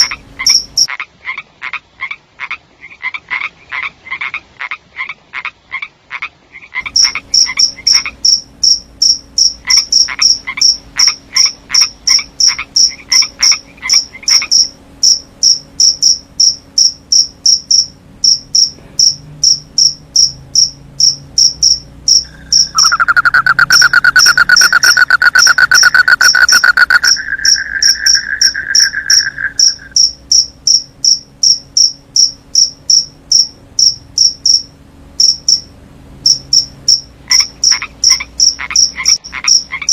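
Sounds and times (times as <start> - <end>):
crickets chirping: 0.0 - 0.9, 6.8 - 39.9
frogs croaking: 0.0 - 35.6, 36.2 - 39.9
loud buzzing trill: 6.9 - 38.9.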